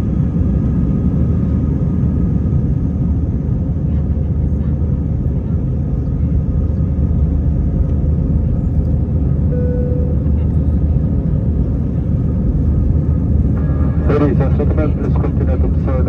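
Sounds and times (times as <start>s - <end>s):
airliner cabin engine rumble: 0.0s - 16.0s
short faint tone: 9.5s - 10.6s.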